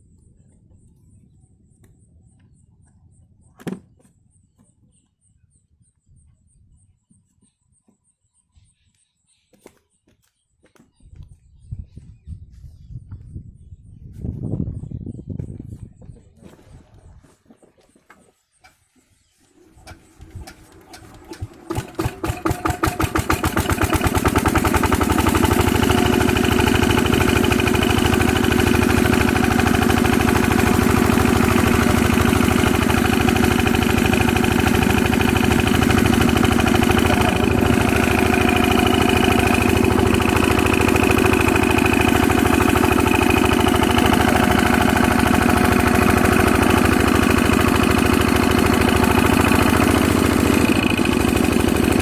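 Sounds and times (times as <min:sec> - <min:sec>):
diesel water pump engine starting: 0:19.4 - 0:52.0.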